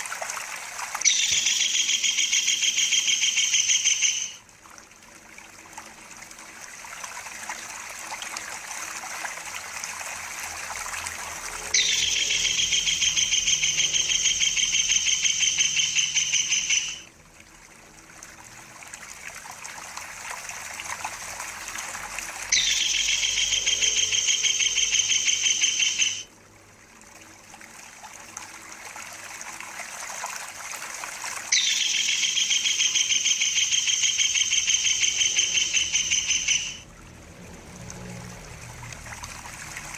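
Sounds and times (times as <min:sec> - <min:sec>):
water trickling: 0:00.0 - 0:39.9
kingfisher rolling trill: 0:11.4 - 0:17.0, 0:22.5 - 0:26.3, 0:31.5 - 0:36.8.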